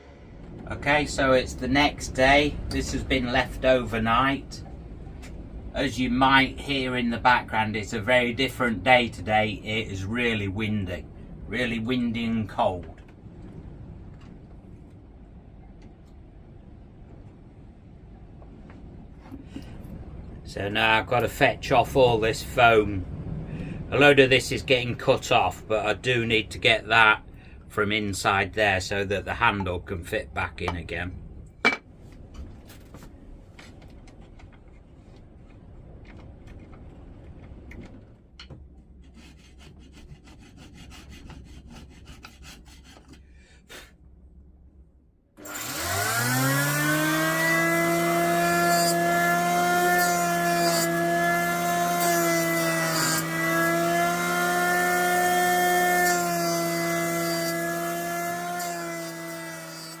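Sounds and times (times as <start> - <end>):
hand scraping and cutting: 39.0 - 43.2
power tool whining: 45.4 - 60.0.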